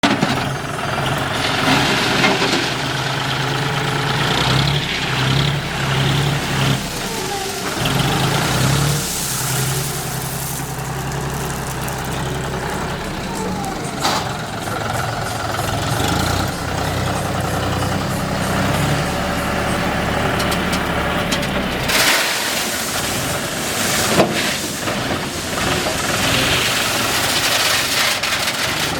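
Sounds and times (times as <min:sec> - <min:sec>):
tractor engine running: 0:00.0 - 0:28.9.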